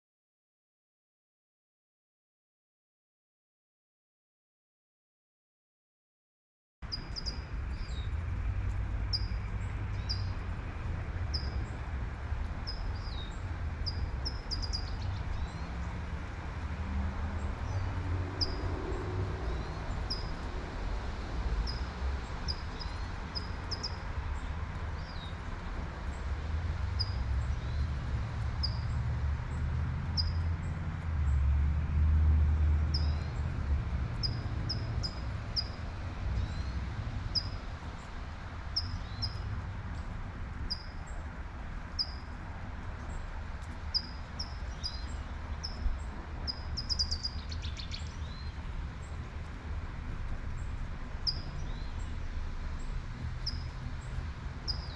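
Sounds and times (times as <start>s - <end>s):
low traffic rumble: 6.8s - 54.9s
bird chirping: 6.9s - 8.1s, 9.1s - 10.4s, 11.3s - 11.8s, 12.7s - 15.7s, 19.4s - 20.4s, 43.9s - 45.8s, 46.5s - 48.6s, 51.2s - 52.2s, 54.7s - 54.9s
car passing: 13.4s - 40.0s.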